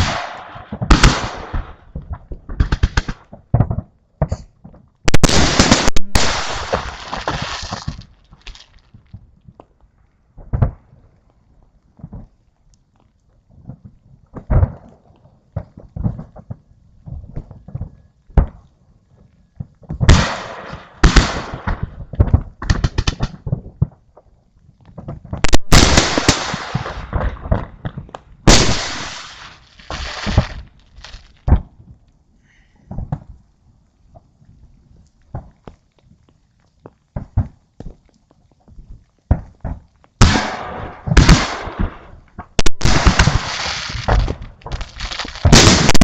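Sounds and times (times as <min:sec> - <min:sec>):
fireworks bangs and crackling: 0:00.0 - 0:09.7, 0:19.6 - 0:24.1, 0:24.9 - 0:31.8, 0:38.8 - 0:46.0.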